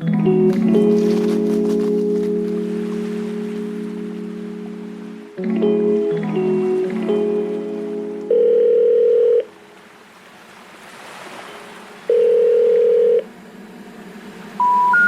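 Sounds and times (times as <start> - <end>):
telephone ringing tone beeps: 8.3 - 9.5, 12.1 - 13.2, 14.6 - 15.0.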